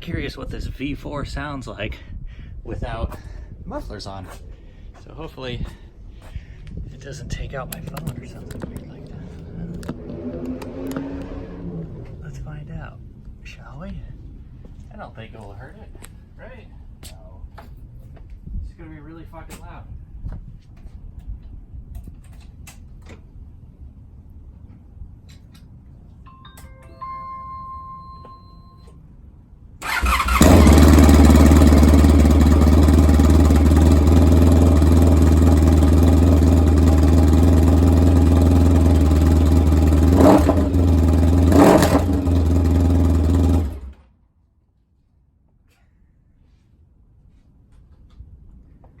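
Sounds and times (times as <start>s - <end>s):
motorcycle engine with open exhaust: 29.8s - 44.0s.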